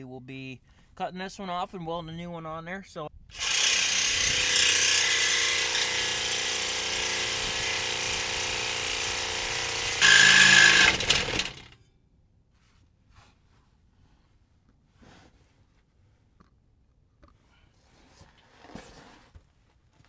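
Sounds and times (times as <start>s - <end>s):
power saw cutting steel pipe: 3.3s - 11.8s.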